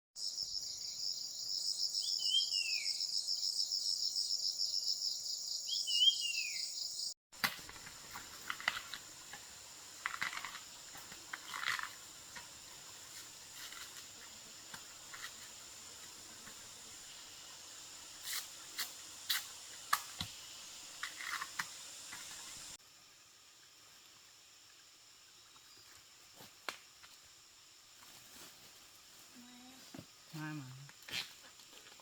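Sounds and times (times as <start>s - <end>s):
insect chorus buzzing: 0.2s - 32.0s.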